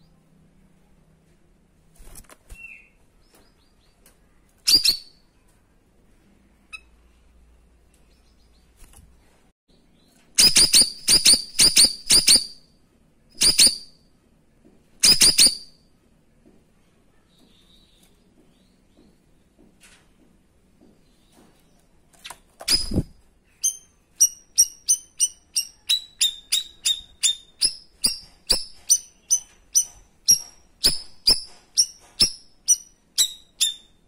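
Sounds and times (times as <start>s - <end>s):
faint small bird chirps: 2.5s - 5.7s, 6.6s - 8.8s, 9.7s - 14.1s, 15.0s - 15.9s, 17.1s - 19.2s, 21.0s - 34.0s.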